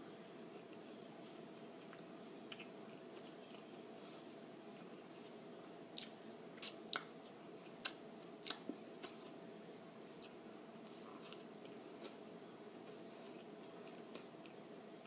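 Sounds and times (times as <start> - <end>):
person chewing food: 0.5 - 9.4, 10.2 - 12.2.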